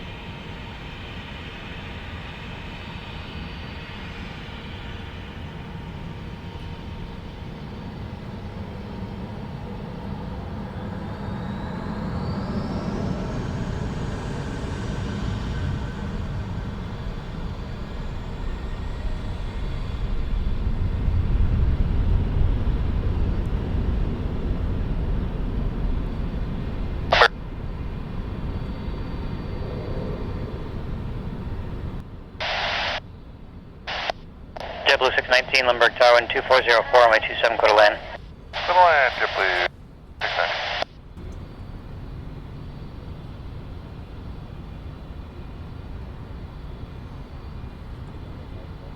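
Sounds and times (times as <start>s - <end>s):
jet airliner taking off: 0.1s - 48.9s
rising engine whine: 9.7s - 33.2s.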